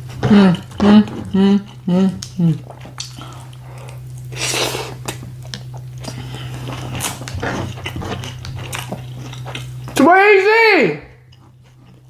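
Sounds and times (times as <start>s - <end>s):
person chewing crunchy food: 0.0s - 10.0s, 11.2s - 12.0s
steady low hum: 0.0s - 12.0s.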